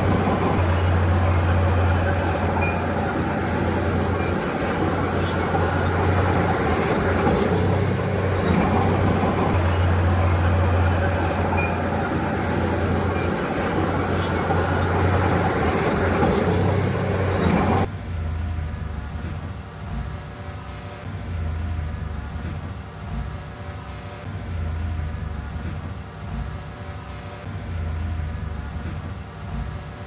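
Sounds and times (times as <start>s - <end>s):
high squeaks and clinks: 0.0s - 17.9s
bulldozer diesel engine droning: 0.0s - 19.3s.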